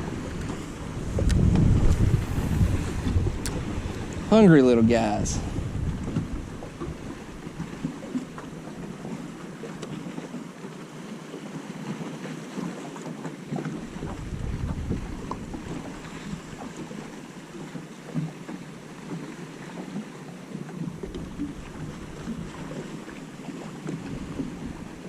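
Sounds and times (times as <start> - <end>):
wind buffeting microphone: 0.0 - 9.7, 13.6 - 17.1
water lapping against boat hull: 0.0 - 25.0.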